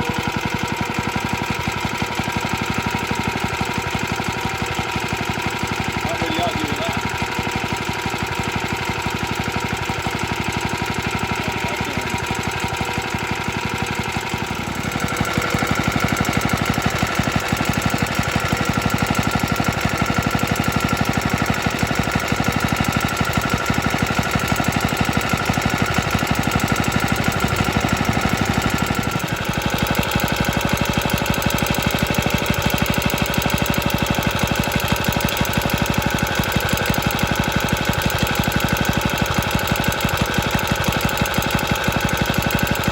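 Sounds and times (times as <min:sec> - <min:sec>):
small stationary engine running: 0:00.0 - 0:42.9.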